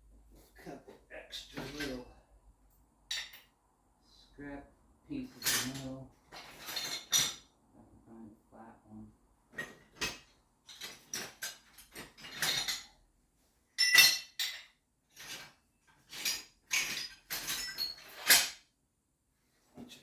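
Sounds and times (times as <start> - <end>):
scrap steel pieces clanking: 3.1 - 3.5, 5.3 - 7.5, 9.5 - 13.0, 13.8 - 18.6.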